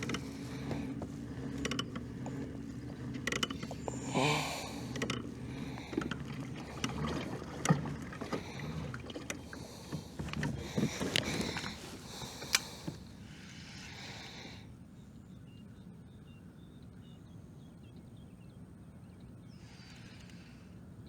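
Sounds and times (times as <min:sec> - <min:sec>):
knocks and clicks from boat: 0:00.0 - 0:13.3
water swishing along hull: 0:00.0 - 0:15.1.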